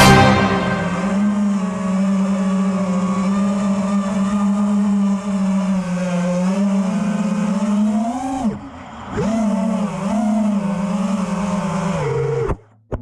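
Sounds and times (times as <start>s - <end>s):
quadcopter motors whining: 1.0s - 12.6s.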